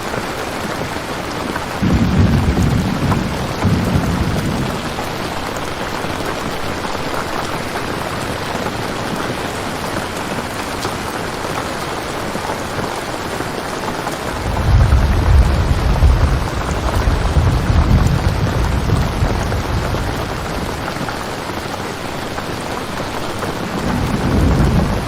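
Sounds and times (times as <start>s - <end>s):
steady rain: 0.0s - 25.0s
low rumble of thunder: 1.8s - 5.7s, 14.3s - 21.2s, 23.4s - 25.0s.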